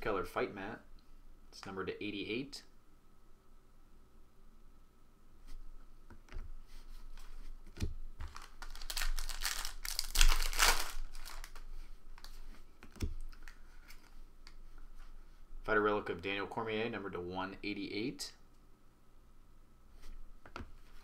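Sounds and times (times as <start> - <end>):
wrapper crinkling and tearing: 8.2 - 12.3.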